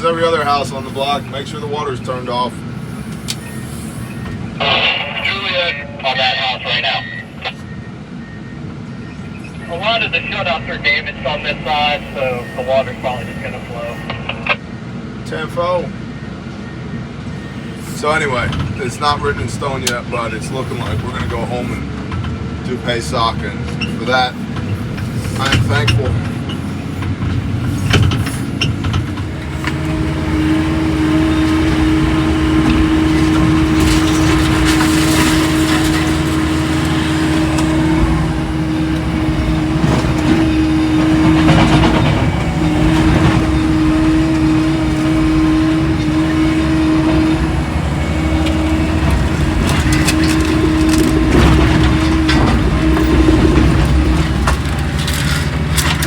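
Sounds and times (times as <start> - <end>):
diesel engine running under load: 0.0 - 56.0
debris crunching and cracking: 27.9 - 44.3.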